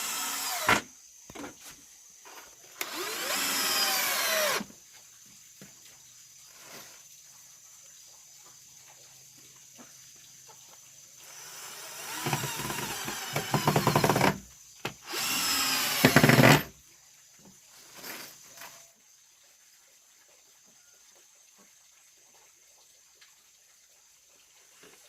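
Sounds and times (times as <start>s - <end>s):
power tool running: 0.0s - 0.9s, 2.8s - 4.7s, 11.3s - 14.4s, 15.0s - 16.7s.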